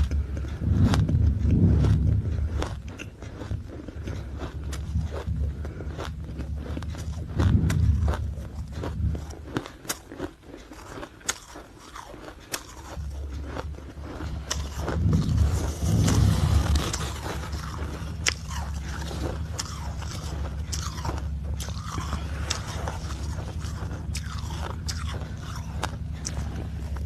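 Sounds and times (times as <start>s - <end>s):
ice being chewed: 0.0s - 27.0s
low steady hum: 0.0s - 27.0s.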